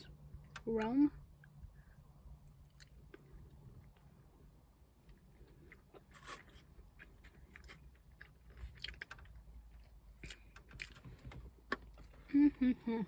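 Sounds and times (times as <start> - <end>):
low steady hum: 0.0 - 13.0
person chewing food: 1.4 - 4.2, 5.0 - 12.0.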